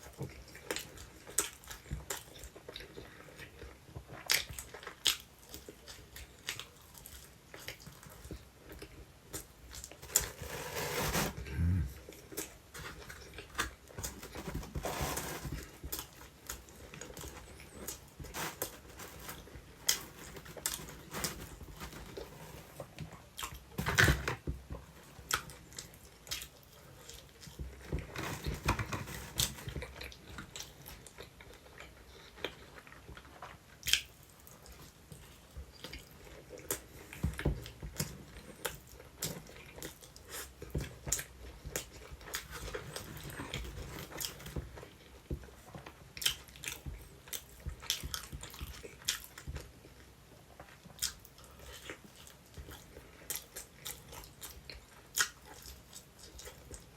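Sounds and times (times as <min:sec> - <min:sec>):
close-up chewing with mouth clicks: 0:00.0 - 0:10.2, 0:11.4 - 0:14.8, 0:29.3 - 0:56.9.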